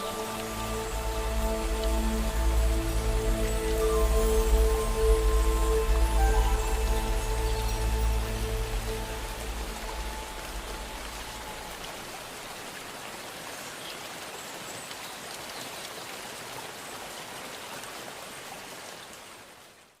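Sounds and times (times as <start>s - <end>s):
low orchestral music: 0.0s - 12.0s
rain drops ticking: 0.0s - 16.6s
steady rain hiss: 0.0s - 20.0s.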